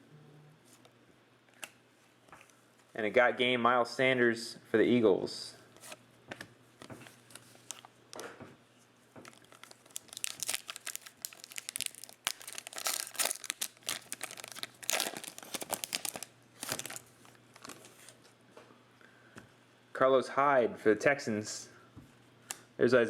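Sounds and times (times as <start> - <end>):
plastic wrapper crinkling and tearing: 7.0 - 8.2, 9.2 - 18.2.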